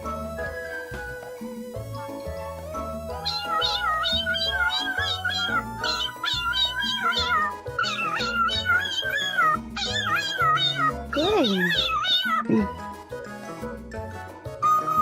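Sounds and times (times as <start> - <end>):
parrot meow-like calls: 3.1 - 12.7, 14.6 - 15.0
background music with bass line: 12.4 - 15.0.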